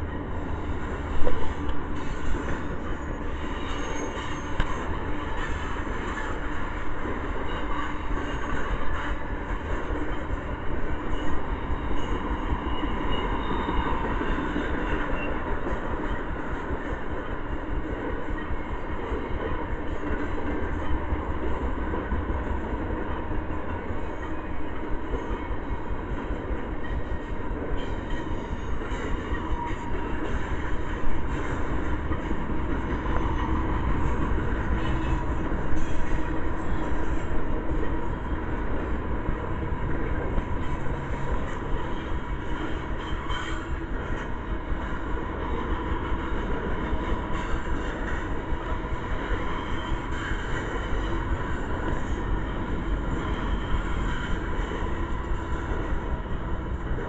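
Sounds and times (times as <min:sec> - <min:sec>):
freight train wheels rumbling on rails: 0:00.0 - 0:57.0.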